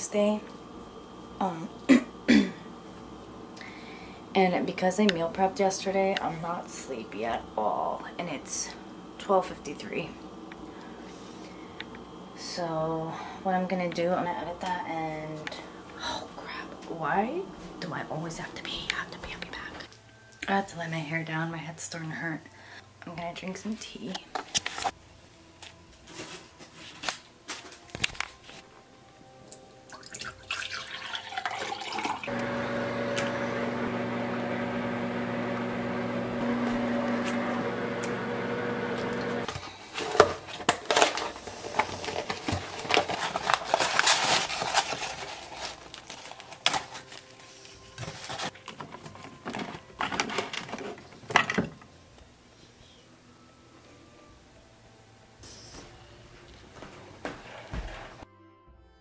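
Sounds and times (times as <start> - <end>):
microwave oven humming: 0.1 - 13.8, 32.2 - 39.5
liquid pouring: 29.9 - 32.3.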